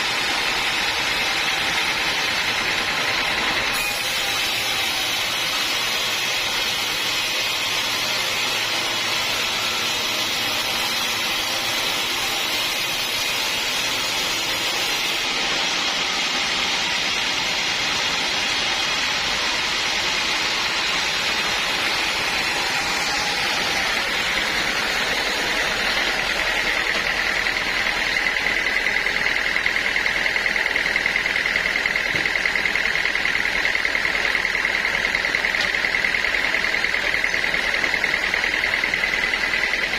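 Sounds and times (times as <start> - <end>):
high fast-pulsing whine: 0.0 - 39.9
sawmill saw cutting log: 0.0 - 39.9.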